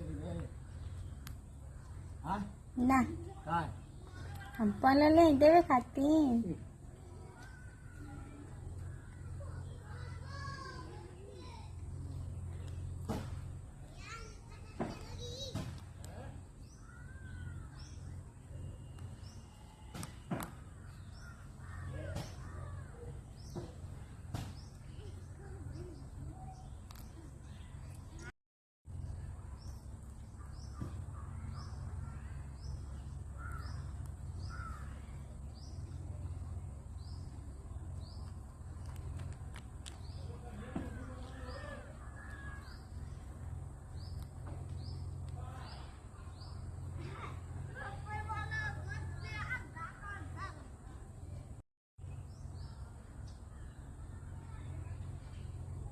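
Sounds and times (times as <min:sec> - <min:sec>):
birds calling: 0:00.0 - 0:28.3, 0:28.9 - 0:55.9
steady low hum: 0:28.9 - 0:55.9.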